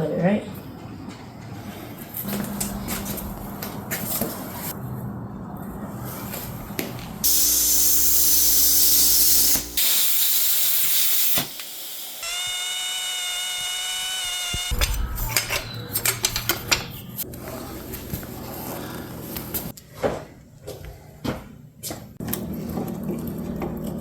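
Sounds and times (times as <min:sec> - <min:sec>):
loud hiss: 0:07.2 - 0:15.6
small motor whining: 0:11.4 - 0:15.2
low hum: 0:13.8 - 0:19.7.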